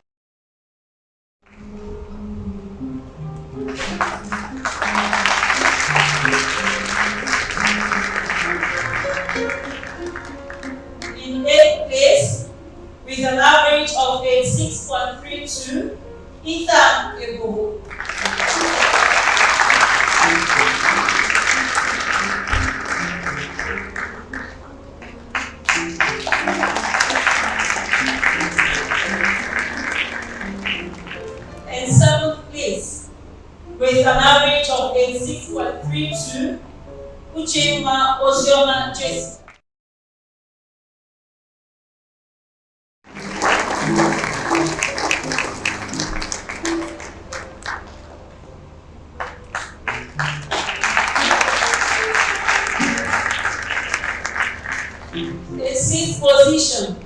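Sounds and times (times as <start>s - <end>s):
background music: 1.5s - 39.6s, 43.1s - 57.0s
audience clapping: 3.7s - 11.2s, 17.8s - 31.7s, 43.1s - 48.2s, 49.2s - 55.3s.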